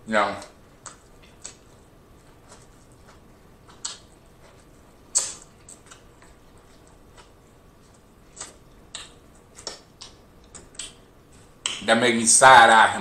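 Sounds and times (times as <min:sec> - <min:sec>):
mouth smacks: 0:02.4 - 0:04.1, 0:05.1 - 0:11.0.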